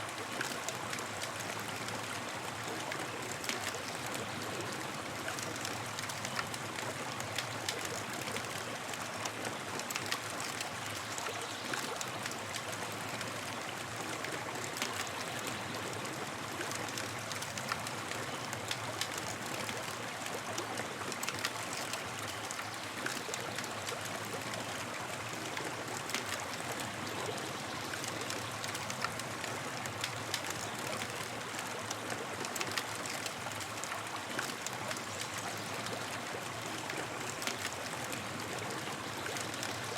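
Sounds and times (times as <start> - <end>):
campfire crackling and popping: 0.2 - 27.3, 27.9 - 39.9.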